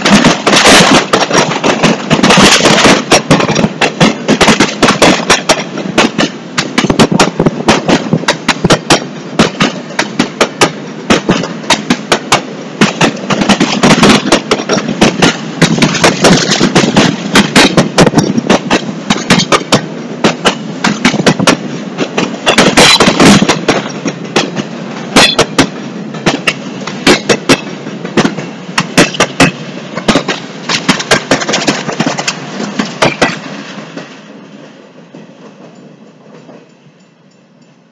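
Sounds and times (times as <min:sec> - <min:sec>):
train wheels rumbling: 0:00.0 - 0:37.9
freight cars clanking and banging: 0:11.1 - 0:33.5.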